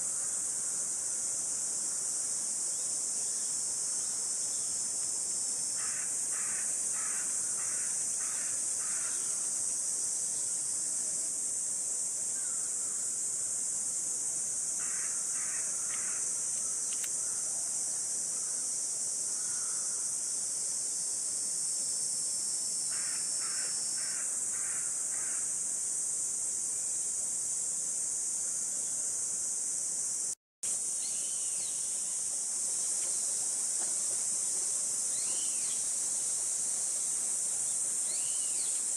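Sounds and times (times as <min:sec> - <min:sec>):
cicadas buzzing: 0:00.0 - 0:38.9
crows cawing: 0:05.8 - 0:09.2.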